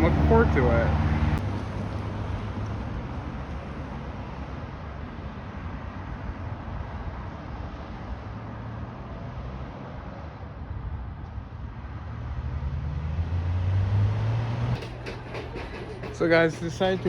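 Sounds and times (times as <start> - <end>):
low engine hum: 0.0 - 5.9
outdoor background noise: 0.0 - 17.0.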